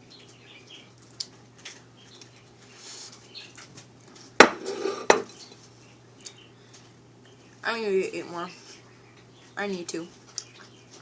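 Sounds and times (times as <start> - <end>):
kitchenware knocking and clattering: 4.4 - 5.3.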